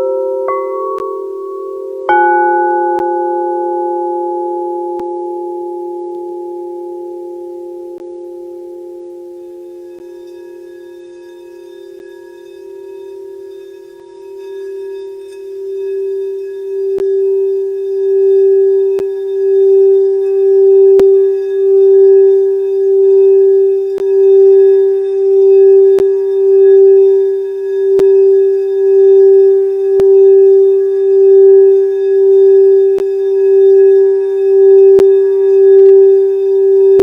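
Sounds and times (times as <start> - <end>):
singing bowl low tone: 0.0 - 37.0
faint light ticks: 19.0 - 19.2.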